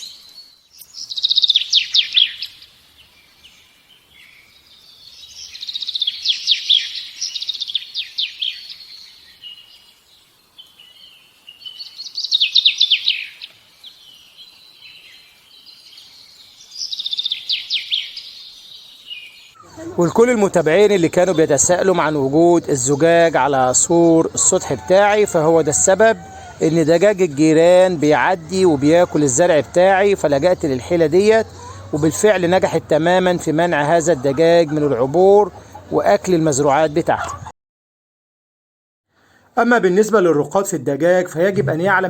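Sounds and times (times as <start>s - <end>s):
songbird singing: 0.0s - 37.5s, 39.6s - 42.0s.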